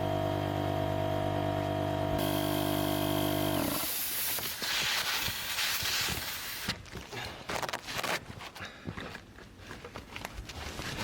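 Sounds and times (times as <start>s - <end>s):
electric air pump humming: 0.0s - 4.7s
rustling and crunching: 4.4s - 11.0s.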